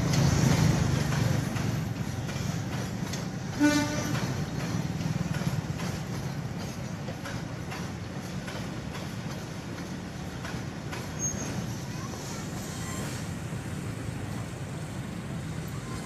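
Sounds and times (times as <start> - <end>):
freight train rumbling: 0.0 - 16.0
wheels and couplings clanking: 0.0 - 16.0
train horn toot: 3.5 - 4.2.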